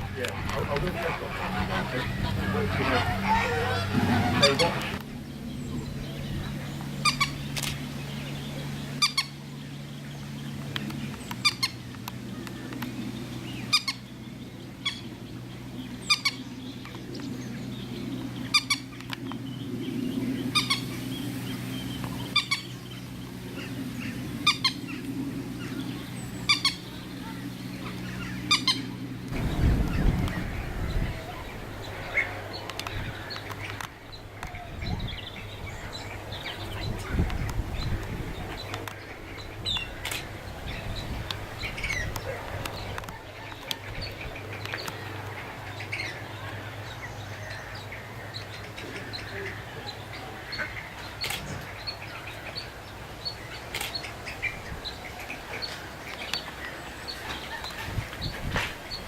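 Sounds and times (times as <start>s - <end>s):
steady low hum: 0.0s - 59.0s
low rumble: 12.2s - 43.0s.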